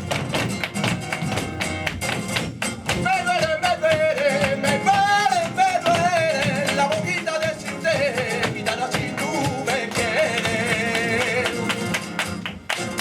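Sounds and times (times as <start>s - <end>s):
flamenco guitar with percussive strikes: 0.0s - 13.0s
person singing flamenco: 0.0s - 13.0s.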